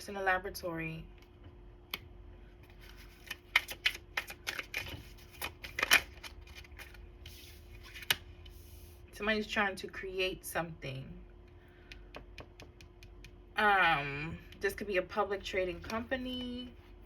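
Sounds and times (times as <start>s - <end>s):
cards being shuffled: 2.6s - 8.2s.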